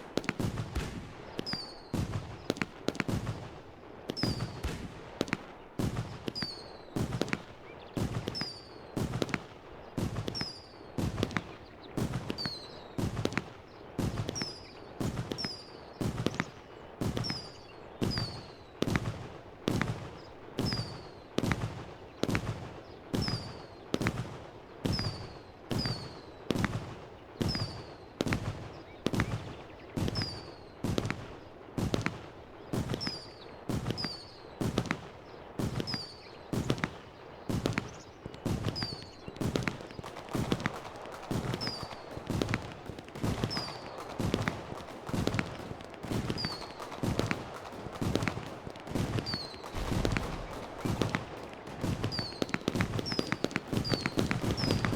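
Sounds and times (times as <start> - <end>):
fireworks bangs: 0.0 - 54.9.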